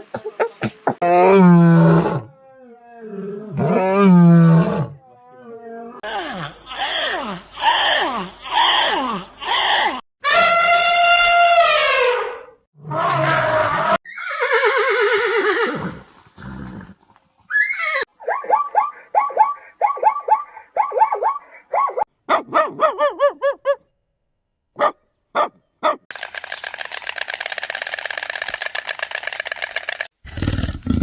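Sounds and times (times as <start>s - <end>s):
horse whinnying: 7.7s - 18.1s
rapid rattling buzz: 26.1s - 30.1s.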